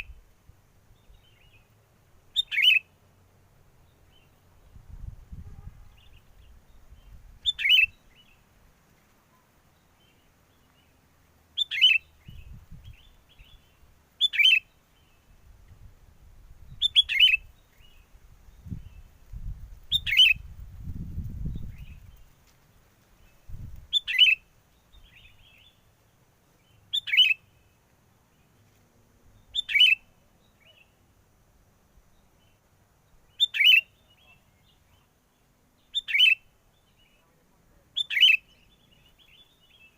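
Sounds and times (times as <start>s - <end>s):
wind rumble on microphone: 4.6s - 8.1s, 12.2s - 13.6s, 15.2s - 22.3s, 23.2s - 24.0s.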